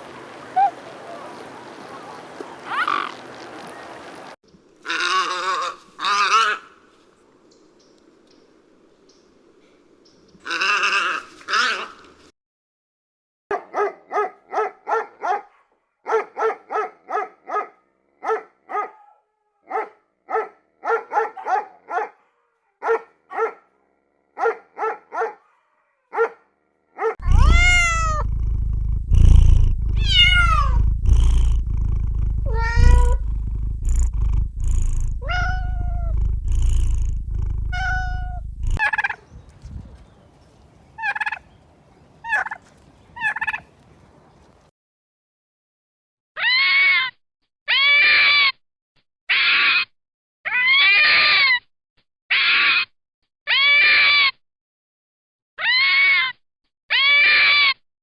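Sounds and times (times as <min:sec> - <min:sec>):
high falling animal calls: 0:00.3 - 0:04.2, 0:27.2 - 0:40.1
steady low rumble: 0:27.2 - 0:38.9
short pitched animal calls: 0:27.2 - 0:39.2.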